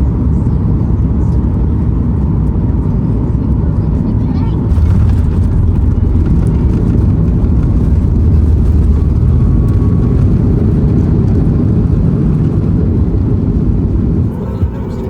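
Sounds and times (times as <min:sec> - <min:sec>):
airplane engines rumbling in cabin: 0:00.0 - 0:15.0.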